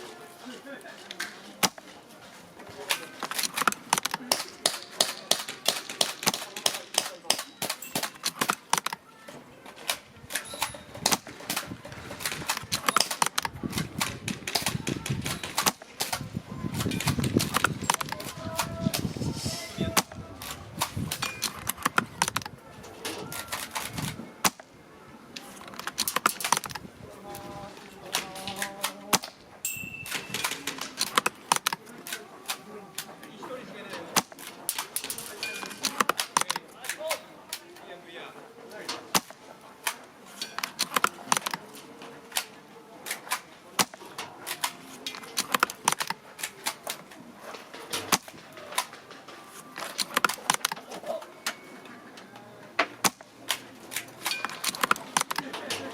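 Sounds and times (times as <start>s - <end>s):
airsoft guns firing clicks and snaps: 1.1s - 1.9s, 2.8s - 9.0s, 9.8s - 19.1s, 19.9s - 22.6s, 23.2s - 24.8s, 25.4s - 26.9s, 28.0s - 29.4s, 30.1s - 33.1s, 34.0s - 37.8s, 38.9s - 47.2s, 47.9s - 49.1s, 49.7s - 51.0s, 52.8s - 55.9s
airsoft rifle shots: 2.9s - 9.0s.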